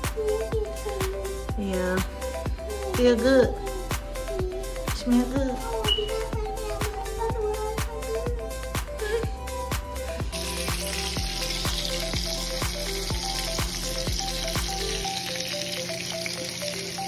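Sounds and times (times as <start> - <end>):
background music with beat: 0.0 - 17.0
meat patties sizzling in pan: 10.3 - 17.0.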